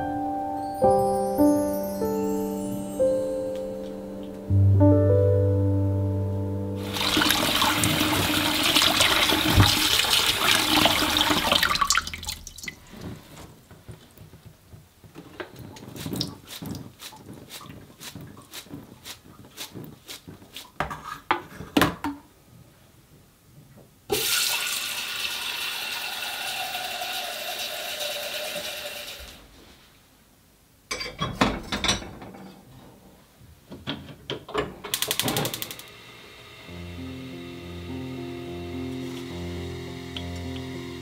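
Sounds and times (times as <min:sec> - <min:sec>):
tap water running into sink: 0:06.8 - 0:13.0, 0:24.1 - 0:29.4
water filling a saucepan: 0:06.8 - 0:13.1, 0:24.1 - 0:29.4.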